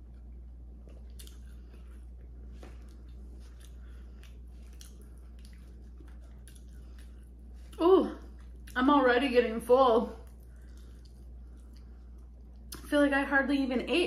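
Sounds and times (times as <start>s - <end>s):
chewing: 0.0s - 9.2s, 10.0s - 12.9s
low hum: 0.0s - 14.0s
wet mouth clicks: 2.8s - 8.8s.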